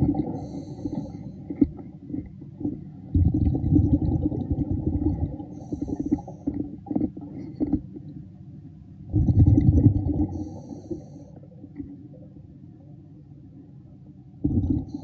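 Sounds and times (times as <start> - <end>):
muffled underwater water rumble: 0.0 - 15.0.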